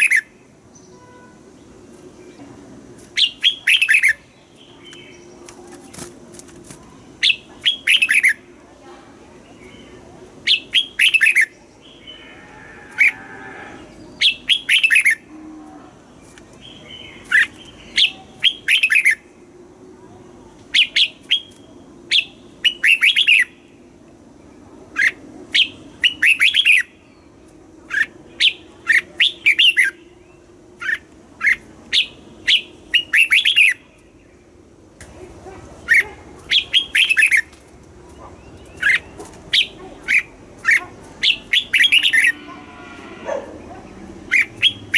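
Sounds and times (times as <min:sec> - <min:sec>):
bulbul singing: 0:38.1 - 0:42.6, 0:43.3 - 0:44.9.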